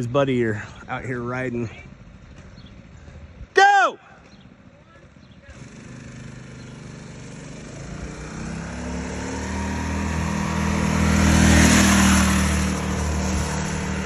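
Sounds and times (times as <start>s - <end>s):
mini bike engine passing: 4.2s - 14.0s.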